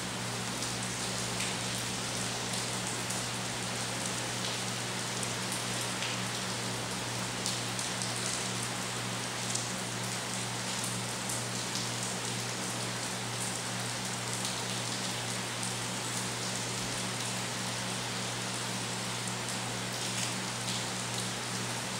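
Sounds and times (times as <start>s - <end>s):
steady rain falling: 0.0s - 21.9s.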